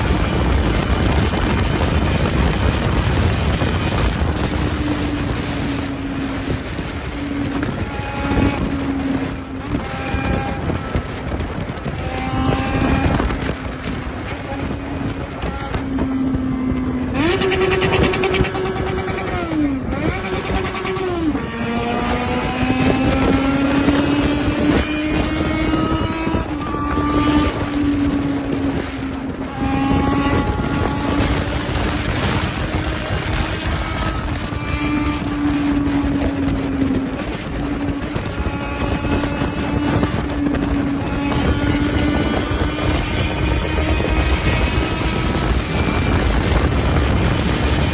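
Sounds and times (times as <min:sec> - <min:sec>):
motorcycle engine revving: 0:00.0 - 0:47.9
wind noise: 0:00.0 - 0:47.9.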